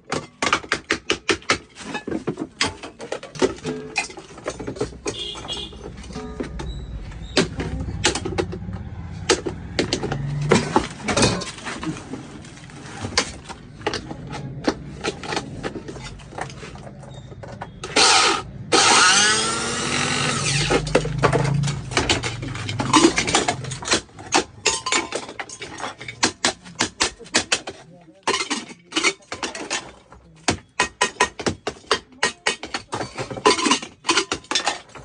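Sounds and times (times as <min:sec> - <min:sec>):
tools and parts clicking: 0:13.0 - 0:30.1, 0:30.8 - 0:35.0
small electric motor running: 0:18.1 - 0:20.7.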